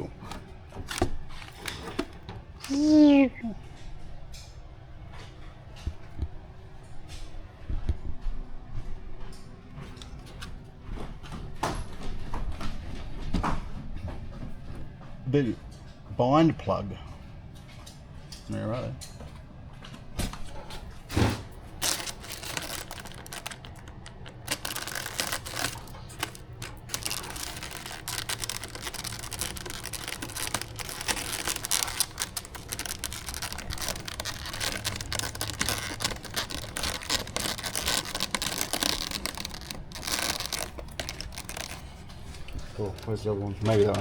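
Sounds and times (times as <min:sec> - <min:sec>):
plastic parts clicking and scraping: 0:00.0 - 0:02.9, 0:21.8 - 0:44.0
plastic packaging rustling: 0:00.0 - 0:03.3, 0:21.6 - 0:44.0.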